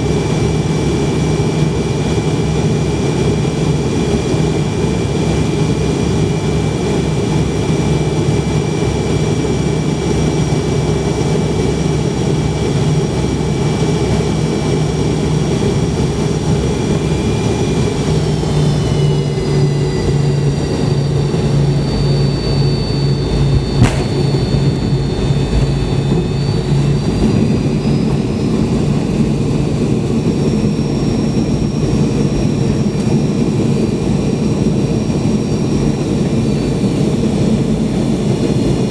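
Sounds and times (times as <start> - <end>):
jet engine whine: 0.0 - 38.9
aircraft cabin rumble: 15.3 - 34.0
sharp thump: 23.2 - 26.8.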